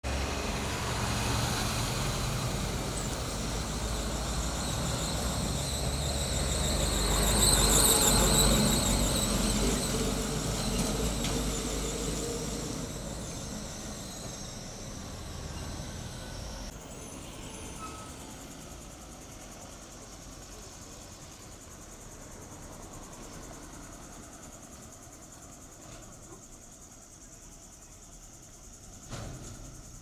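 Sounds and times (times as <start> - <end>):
heavy vehicle rumbling: 0.0 - 19.8
high wavering squeal: 1.7 - 19.1.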